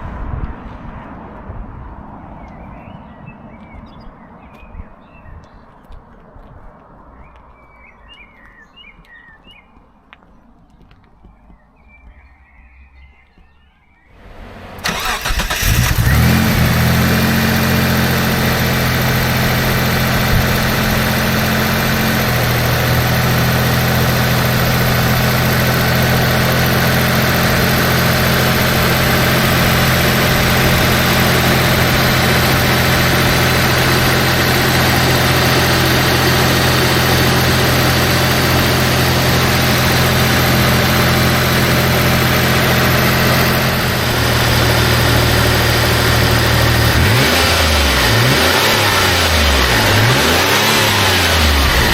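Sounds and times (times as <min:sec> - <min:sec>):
car engine starting and idling: 0:14.2 - 0:51.9.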